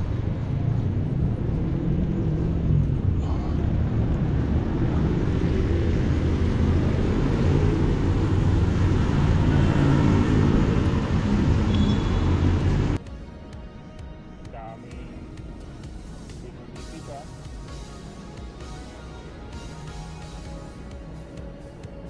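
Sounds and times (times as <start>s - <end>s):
bicycle tyres on asphalt: 0.0s - 13.0s
wind buffeting microphone: 0.0s - 13.0s.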